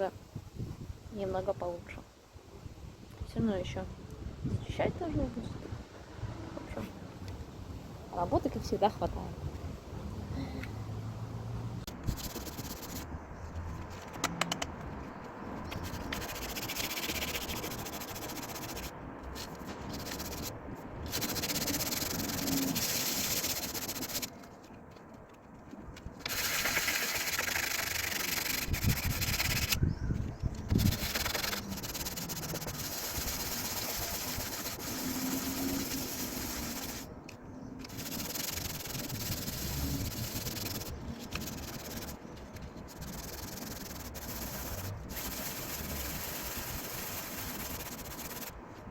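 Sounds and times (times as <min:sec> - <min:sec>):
sandpaper rasping on metal: 0:12.0 - 0:13.1, 0:15.7 - 0:24.3, 0:26.3 - 0:29.8, 0:30.7 - 0:37.1, 0:37.8 - 0:42.2, 0:42.8 - 0:48.6.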